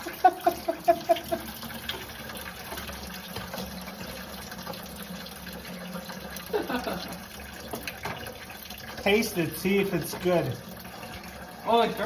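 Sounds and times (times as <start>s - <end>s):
liquid pouring into a pail: 0.0s - 12.0s.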